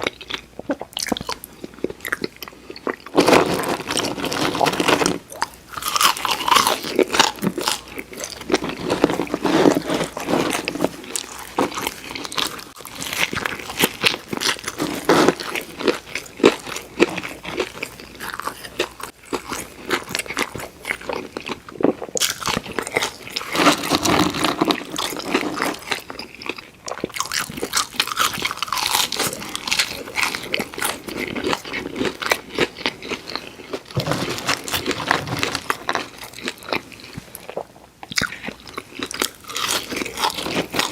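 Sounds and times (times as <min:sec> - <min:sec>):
crunching crispy food: 0:00.0 - 0:40.9.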